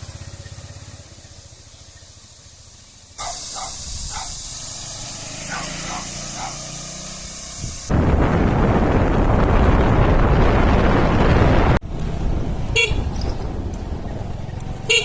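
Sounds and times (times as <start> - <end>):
road noise: 0.0 - 15.0
rushing wind: 3.2 - 15.0
vehicle horn beep: 12.8 - 13.2.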